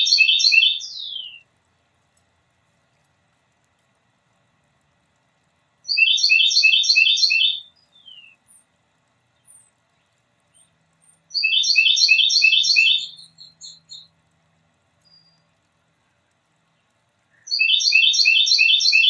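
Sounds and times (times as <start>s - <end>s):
songbird singing: 0.0s - 1.5s, 5.8s - 19.0s.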